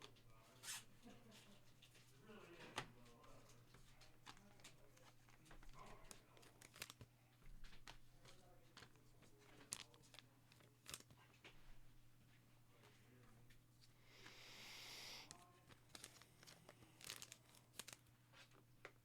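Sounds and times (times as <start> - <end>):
wrappers crinkling and tearing: 4.2 - 11.3, 15.3 - 18.6.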